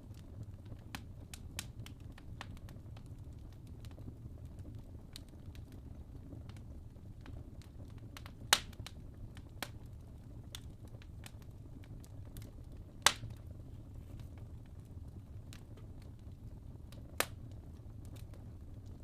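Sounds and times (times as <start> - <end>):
fire crackling: 0.0 - 19.0
logs burning with low rumble: 0.0 - 19.0
loud pops from fire: 0.1 - 19.0.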